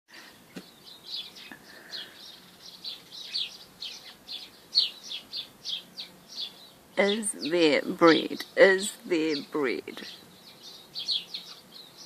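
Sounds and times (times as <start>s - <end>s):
bird chirping: 0.2s - 12.0s.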